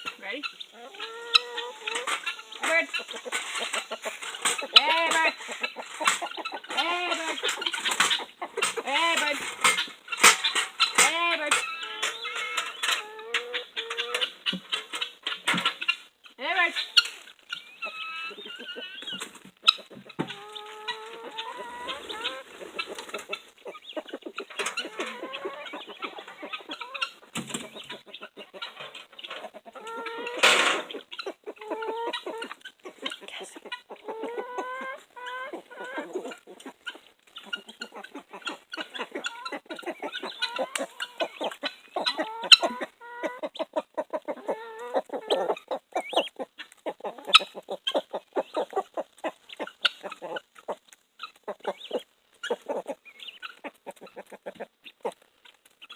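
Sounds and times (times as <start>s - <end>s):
chickens clucking: 0.0s - 55.9s
chicken squawk: 0.5s - 8.8s, 17.8s - 28.8s, 29.4s - 50.4s.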